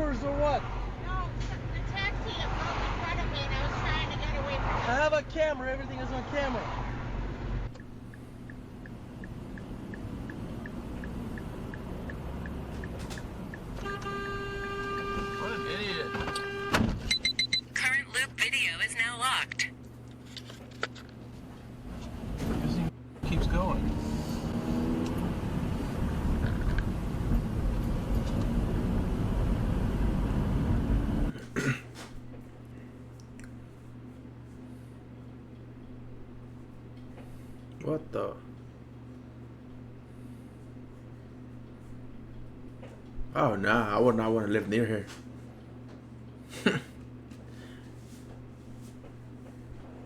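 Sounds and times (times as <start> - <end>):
engine and cab rumble: 0.0 - 33.7.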